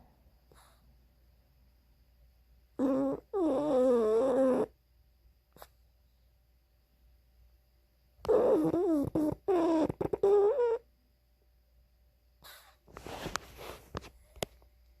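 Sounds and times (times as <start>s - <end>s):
dog noisy breath: 0.4s - 0.9s, 12.4s - 14.3s.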